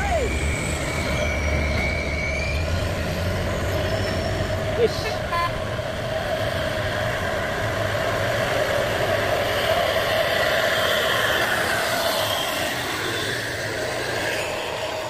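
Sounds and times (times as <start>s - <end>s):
road and traffic noise: 0.0s - 15.0s.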